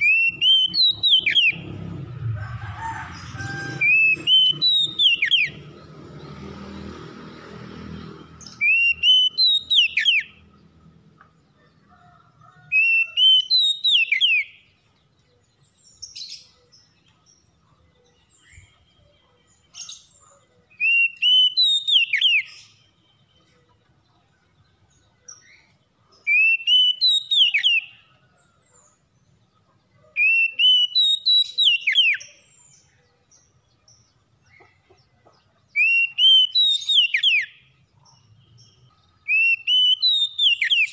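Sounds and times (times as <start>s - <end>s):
bird whistled song: 0.0s - 1.6s, 3.9s - 5.6s, 8.4s - 10.4s, 12.7s - 14.7s, 18.3s - 23.6s, 25.3s - 28.0s, 30.2s - 32.8s, 35.8s - 37.7s, 38.5s - 40.9s.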